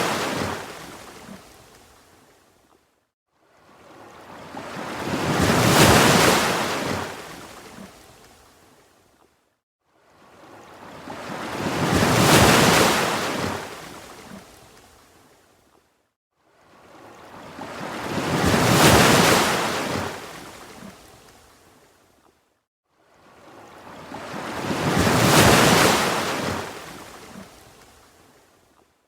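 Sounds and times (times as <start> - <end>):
ocean waves crashing: 0.0 - 1.2, 4.4 - 7.2, 10.9 - 13.8, 17.4 - 20.5, 23.9 - 27.2.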